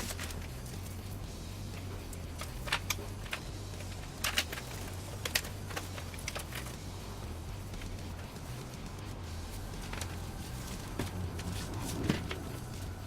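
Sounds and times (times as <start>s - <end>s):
steady low hum: 0.0s - 13.0s
computer parts clicking and tapping: 2.3s - 6.7s.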